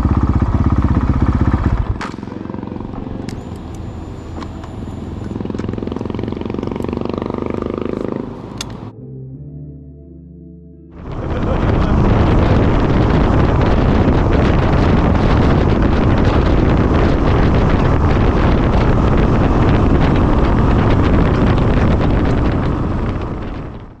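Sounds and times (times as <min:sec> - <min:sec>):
wind buffeting microphone: 0:11.0 - 0:24.0.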